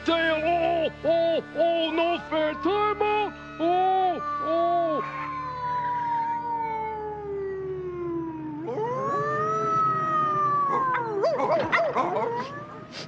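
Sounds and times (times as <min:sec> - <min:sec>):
cartoon dog howling in pain: 0:03.2 - 0:12.9.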